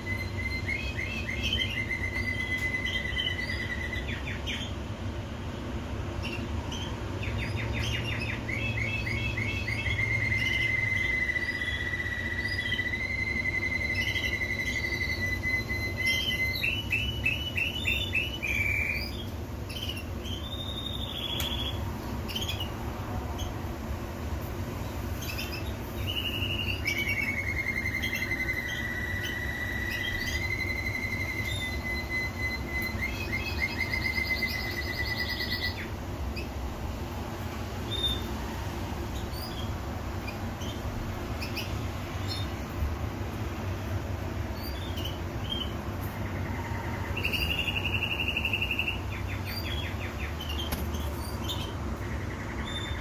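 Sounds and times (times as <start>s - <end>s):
faint bird chirps: 0.0s - 4.8s, 6.2s - 22.8s, 25.1s - 36.5s
canary singing trills: 0.0s - 23.8s, 24.4s - 53.0s
steady low hum: 0.0s - 53.0s.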